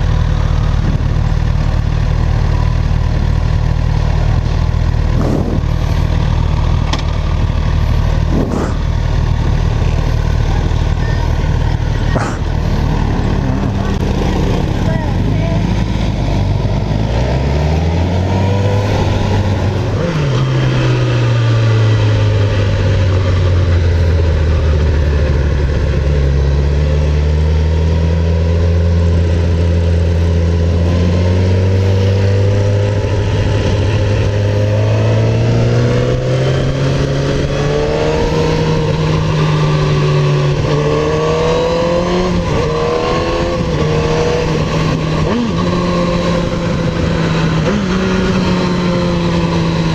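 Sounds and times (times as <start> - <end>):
motorcycle engine: 0.0 - 49.9
wind noise: 4.2 - 7.0, 7.8 - 10.0.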